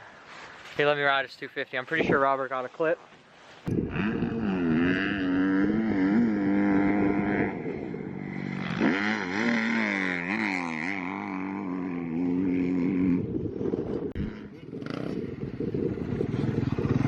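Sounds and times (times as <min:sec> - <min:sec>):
dirt bike engine revving: 0:03.7 - 0:13.4, 0:14.2 - 0:17.0.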